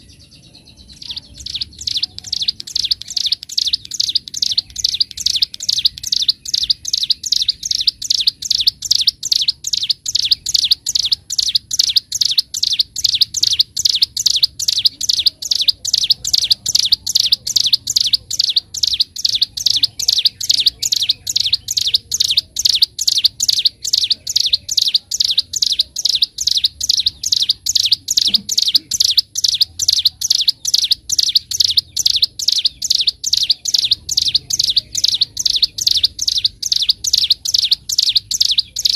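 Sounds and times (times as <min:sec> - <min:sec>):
bird singing rapid high chirps: 0:00.0 - 0:38.9.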